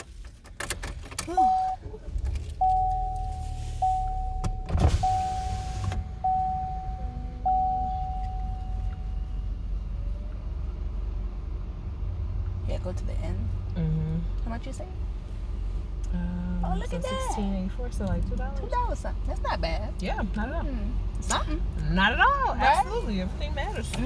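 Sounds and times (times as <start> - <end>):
idling car rumble: 0.0 - 24.0
car warning chime: 1.3 - 1.8, 2.6 - 9.4.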